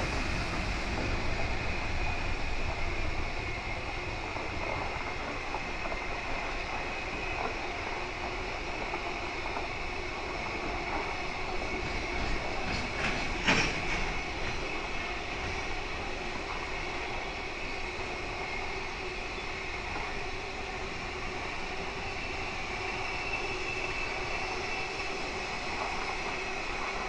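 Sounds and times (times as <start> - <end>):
train wheels rumbling on rails: 0.0 - 27.0
train wagon clanking: 10.9 - 15.7.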